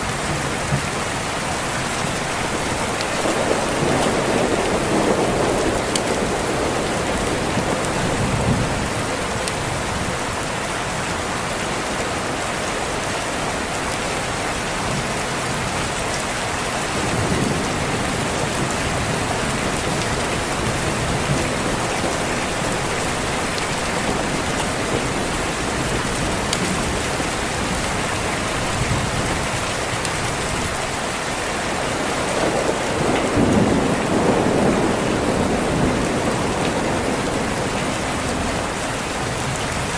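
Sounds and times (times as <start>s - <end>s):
rain on a window: 0.0s - 39.9s
thunder rolling: 2.0s - 10.3s, 16.9s - 30.8s, 31.9s - 39.9s.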